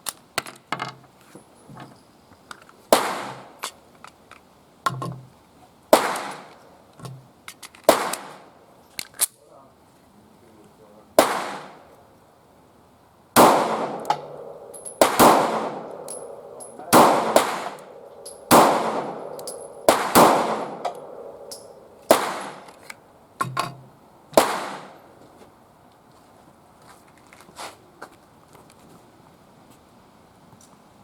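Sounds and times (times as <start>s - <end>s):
pistol shots echoing: 2.9s - 3.6s, 5.9s - 6.5s, 7.9s - 8.4s, 11.2s - 11.9s, 13.4s - 22.9s, 24.4s - 25.1s.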